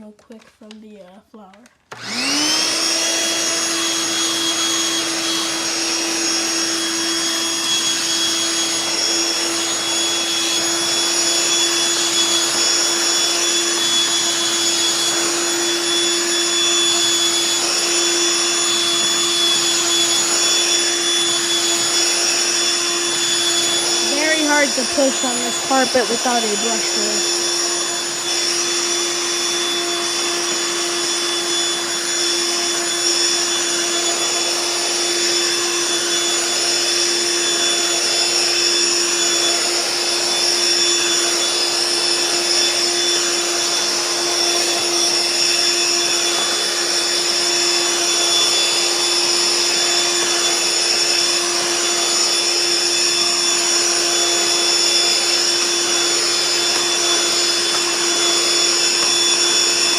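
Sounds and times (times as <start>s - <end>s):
vacuum cleaner running: 1.7s - 59.9s.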